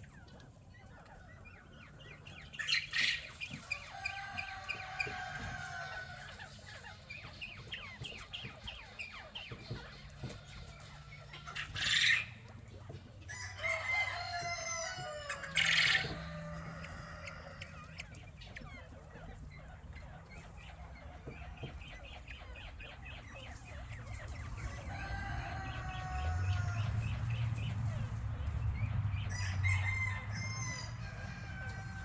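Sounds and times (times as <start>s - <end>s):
chickens clucking: 0.0s - 32.0s
rooster crowing: 3.9s - 6.3s, 13.3s - 17.9s, 24.7s - 27.2s, 29.3s - 32.0s.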